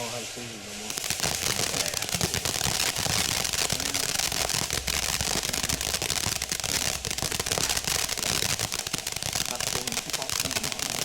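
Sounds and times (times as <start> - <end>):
firework hissing: 0.0 - 11.0
ground firework crackling: 0.0 - 11.0.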